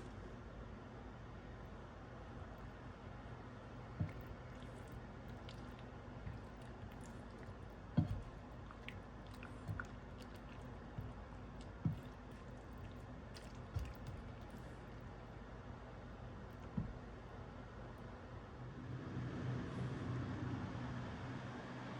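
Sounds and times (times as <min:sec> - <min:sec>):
low background hum: 0:00.0 - 0:21.9
wet squishy food handling: 0:02.3 - 0:17.4
soft dull knocks: 0:04.0 - 0:04.4, 0:08.0 - 0:08.4, 0:16.6 - 0:17.1.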